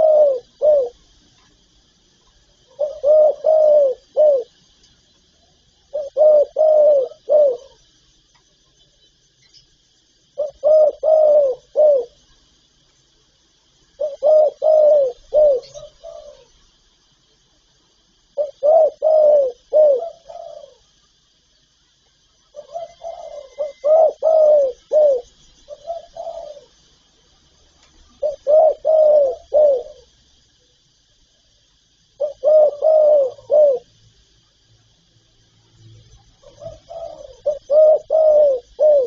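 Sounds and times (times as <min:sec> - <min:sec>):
dove cooing: 0:00.0 - 0:01.1, 0:02.5 - 0:04.6, 0:05.5 - 0:08.0, 0:10.4 - 0:12.2, 0:14.0 - 0:16.6, 0:18.3 - 0:21.0, 0:22.5 - 0:26.8, 0:28.1 - 0:30.2, 0:32.1 - 0:34.0, 0:36.2 - 0:39.0.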